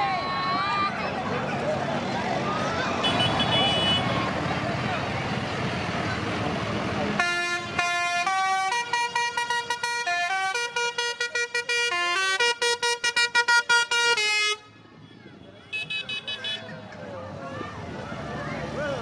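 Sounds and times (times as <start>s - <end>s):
vehicle noise: 0.0s - 19.0s
musical car horn tune: 3.0s - 4.2s, 7.2s - 14.7s, 15.7s - 16.7s.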